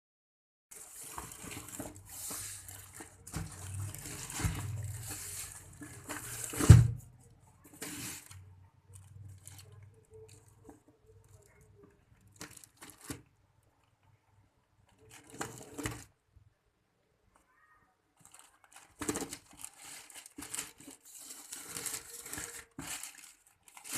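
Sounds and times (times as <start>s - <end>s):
packaging rustling and tearing: 0.7s - 7.0s, 7.7s - 8.4s, 9.0s - 11.6s, 12.3s - 13.3s, 15.0s - 16.1s, 18.2s - 23.9s.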